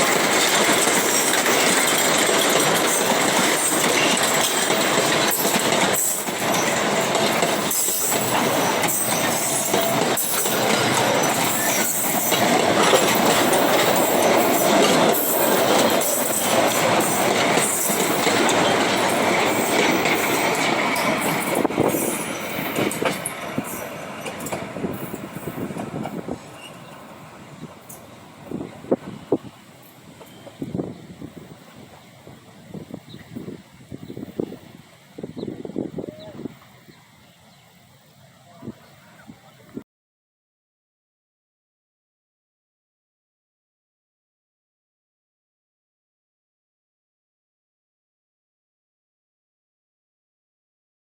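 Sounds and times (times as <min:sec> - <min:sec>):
train wheels clacking over rail joints: 0:00.0 - 0:34.6
metallic wheel squeal: 0:07.7 - 0:12.4.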